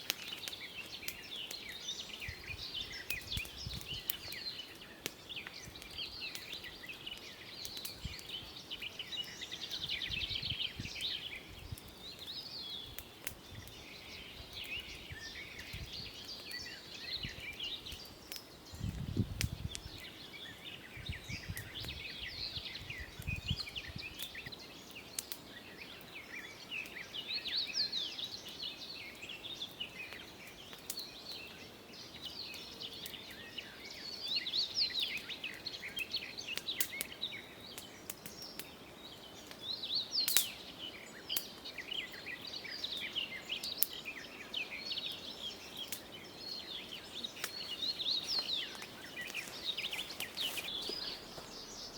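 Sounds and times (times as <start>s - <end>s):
birds chirping and trilling: 0.2s - 51.9s.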